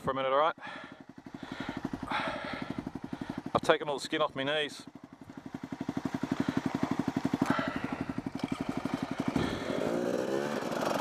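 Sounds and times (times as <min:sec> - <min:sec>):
dirt bike engine idling and revving: 0:00.0 - 0:11.0.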